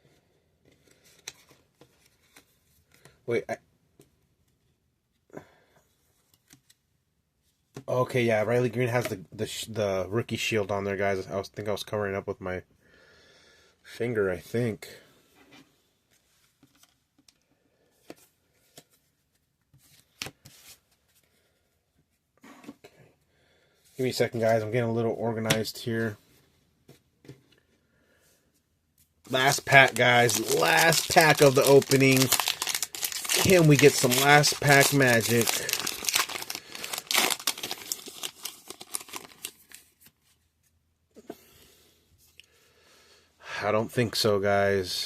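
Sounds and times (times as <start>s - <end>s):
foil wrapper tearing and crinkling: 29.3s - 39.8s
cards rustling: 29.3s - 40.4s.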